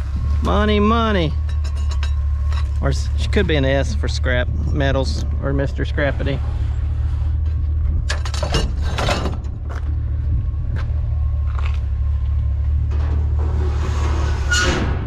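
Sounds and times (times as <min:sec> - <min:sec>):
vehicle engine rumble: 0:00.0 - 0:15.0
short knocks and rattles: 0:07.8 - 0:09.9.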